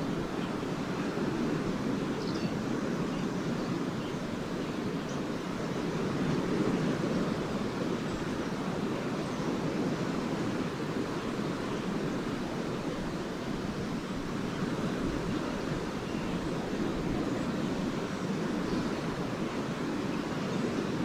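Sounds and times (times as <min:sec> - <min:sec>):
waves washing onto beach: 0:00.0 - 0:21.0.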